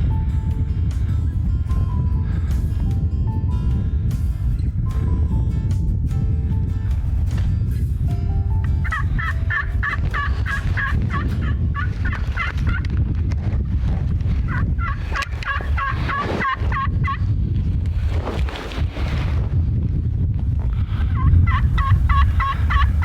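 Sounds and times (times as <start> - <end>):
steady low rumble: 0.0 - 23.0
wild turkeys calling: 8.8 - 12.8, 14.5 - 17.2, 21.2 - 23.0.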